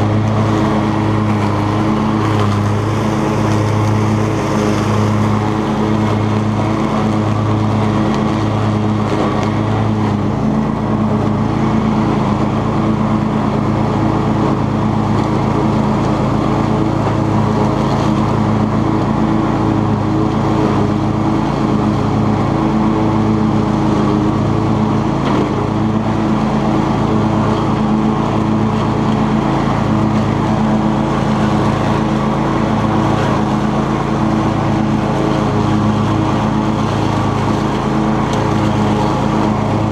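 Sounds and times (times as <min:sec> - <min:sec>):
riding mower engine hum: 0:00.0 - 0:39.9.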